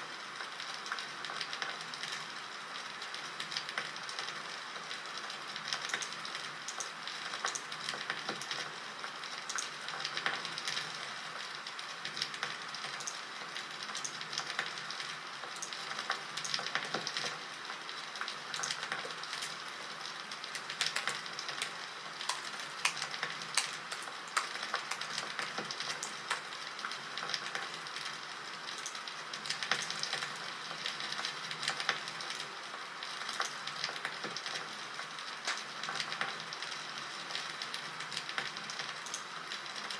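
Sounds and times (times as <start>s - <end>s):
campfire crackling: 18.3s - 28.0s.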